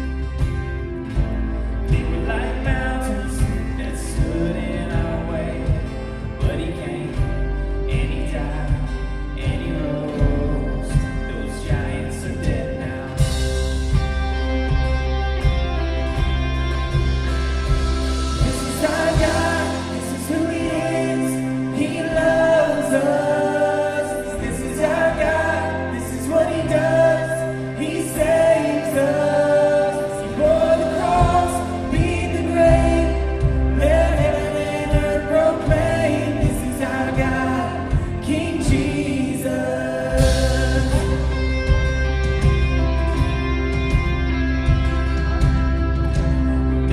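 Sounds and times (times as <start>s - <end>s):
worship band playing: 0.0s - 46.9s
voices singing together: 18.3s - 41.9s.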